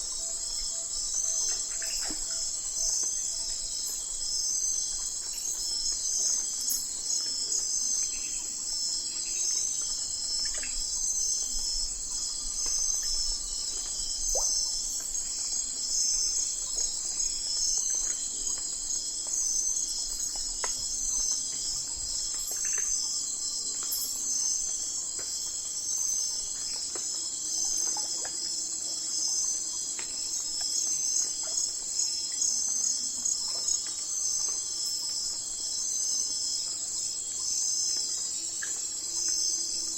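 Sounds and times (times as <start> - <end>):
crickets and insects chirping: 0.0 - 39.9.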